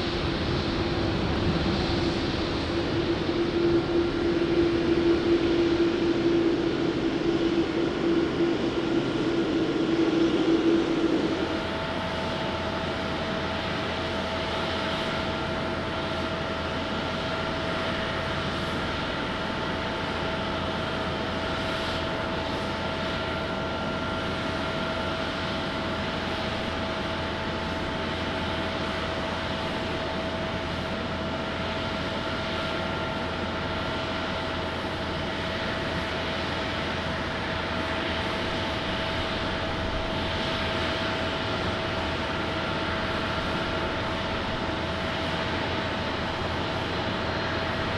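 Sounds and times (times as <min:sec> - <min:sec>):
jet engines rushing and whining: 0:00.0 - 0:47.9.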